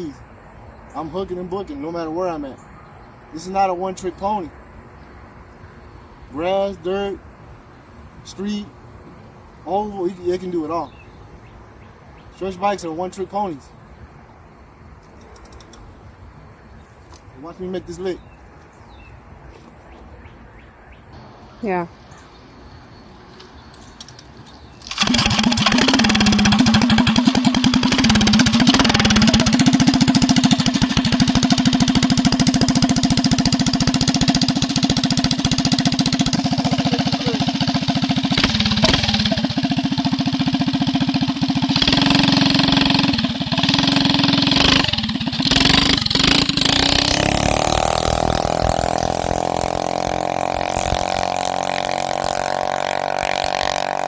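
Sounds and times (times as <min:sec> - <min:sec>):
mini bike engine running: 0:24.9 - 0:54.0.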